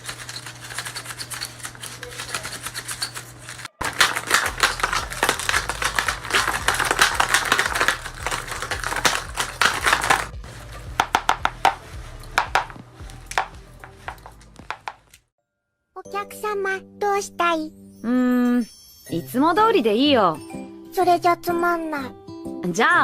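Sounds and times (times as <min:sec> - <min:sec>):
paper crinkling and rustling: 0:00.0 - 0:15.2
scissors snipping paper: 0:00.0 - 0:15.2.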